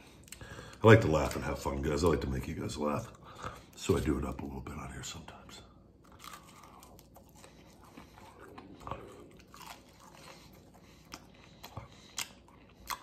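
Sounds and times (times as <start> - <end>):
crunchy chewing: 6.0 - 13.0.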